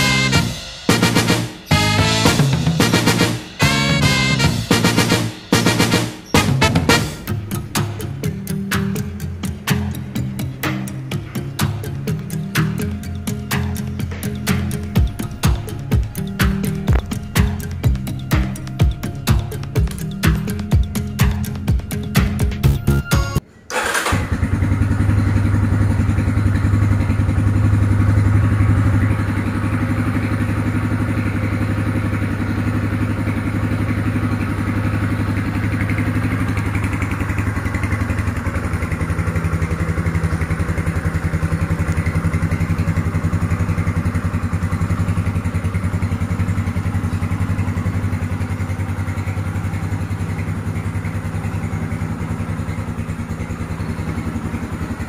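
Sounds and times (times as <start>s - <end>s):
motorcycle engine idling: 0.0s - 22.9s, 23.8s - 55.0s.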